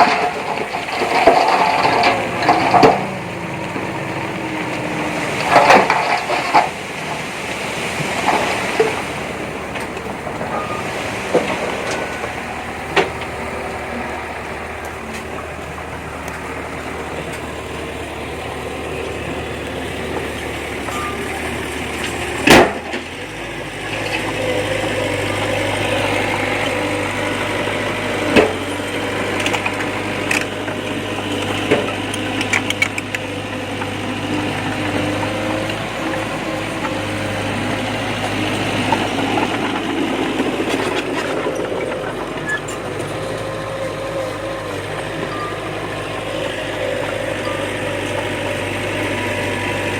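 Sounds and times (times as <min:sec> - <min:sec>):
heavy machinery diesel engine: 0:00.0 - 0:49.9.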